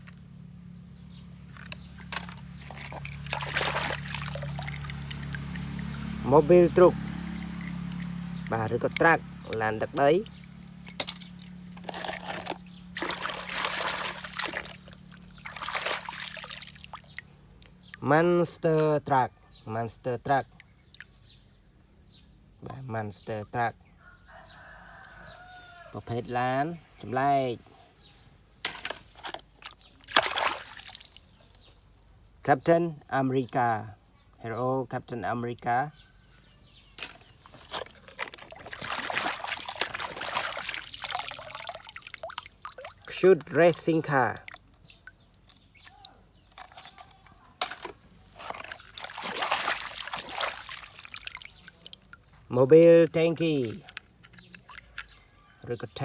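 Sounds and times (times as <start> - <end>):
water trickling and splashing: 1.5 - 18.4, 20.4 - 21.5, 28.7 - 32.1, 37.0 - 55.7
small clicks and knocks: 53.8 - 55.2.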